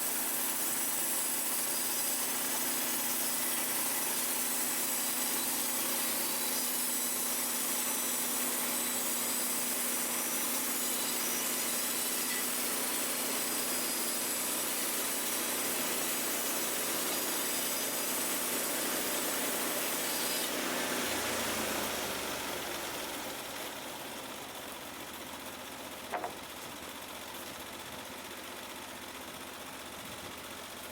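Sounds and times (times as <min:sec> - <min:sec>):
band saw cutting log: 0:00.0 - 0:24.0, 0:26.1 - 0:26.5
sawmill engine running: 0:00.0 - 0:30.9.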